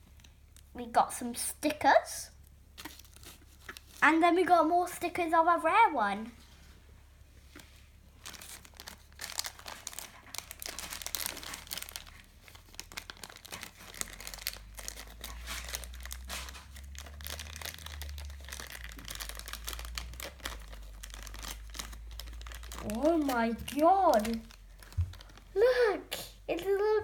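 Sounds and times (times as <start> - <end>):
toy packaging crinkling and tearing: 2.7 - 4.6, 8.2 - 25.7.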